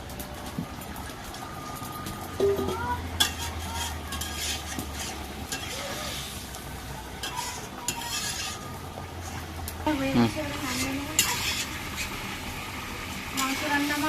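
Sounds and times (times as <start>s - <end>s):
curry sizzling: 0.0s - 14.0s
spoon stirring and scraping pot: 2.5s - 6.6s, 7.2s - 9.6s, 10.5s - 12.2s.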